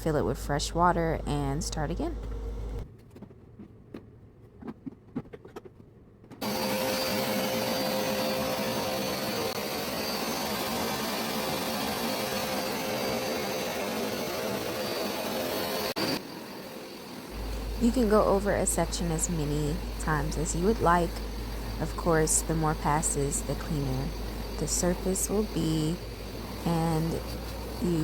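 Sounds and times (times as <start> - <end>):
carpet cleaner running: 6.4 - 28.0.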